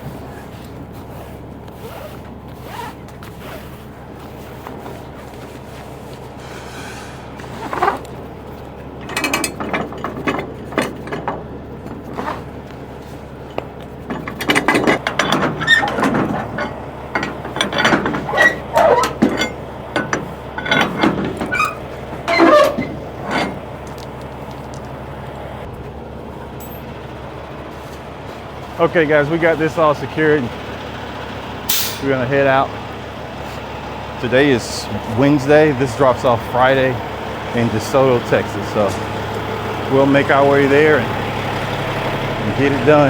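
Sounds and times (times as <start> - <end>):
steady low hum: 3.2 - 30.5.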